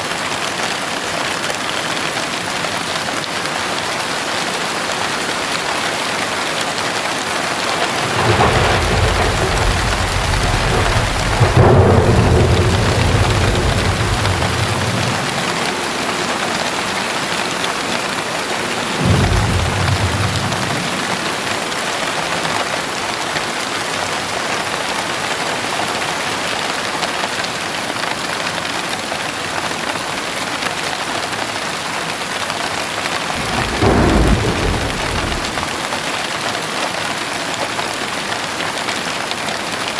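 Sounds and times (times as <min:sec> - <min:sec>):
heavy rain: 0:00.0 - 0:39.9
thunder rumbling: 0:07.2 - 0:17.4, 0:18.5 - 0:22.4, 0:33.0 - 0:35.9.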